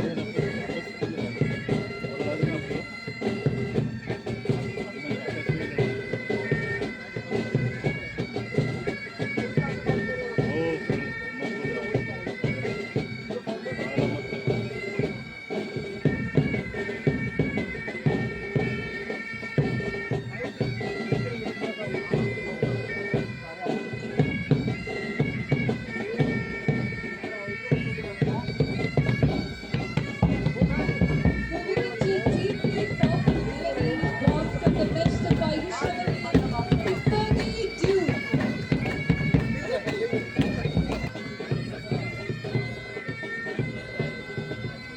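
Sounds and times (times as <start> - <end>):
bagpipe melody over drone: 0.0 - 44.9
snare and bass drums beating: 27.8 - 41.2.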